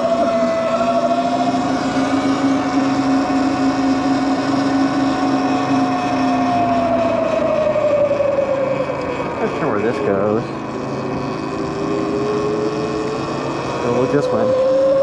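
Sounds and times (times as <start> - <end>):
electric bike motor whining: 0.0 - 15.0.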